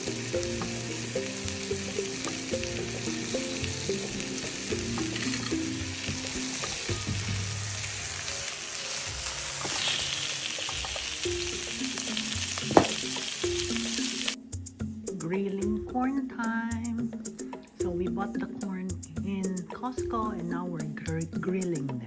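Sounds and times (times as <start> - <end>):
food sizzling in hot oil: 0.0 - 14.4
background music simple melody: 0.0 - 22.0.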